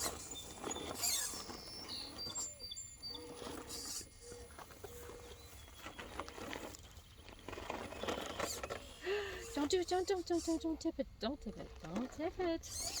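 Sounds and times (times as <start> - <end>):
birds chirping: 0.0 - 13.0
faint scratchy clicks and scraping: 0.0 - 13.0.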